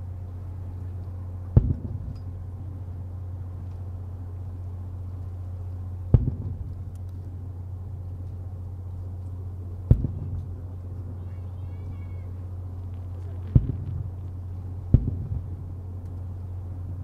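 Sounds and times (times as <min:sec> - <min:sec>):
steady low hum: 0:00.0 - 0:17.0
fireworks booming with echo: 0:01.5 - 0:02.1, 0:06.1 - 0:06.7, 0:09.9 - 0:10.5, 0:13.3 - 0:14.2, 0:14.8 - 0:15.6.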